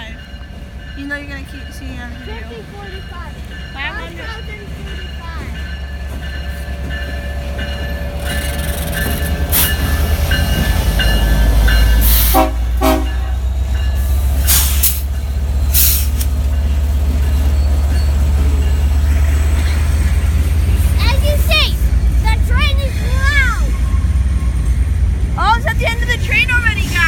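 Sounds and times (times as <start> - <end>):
crossing bell dinging: 0.0 - 27.0
train rumbling past: 0.0 - 27.0
hissing bursts: 14.1 - 16.3.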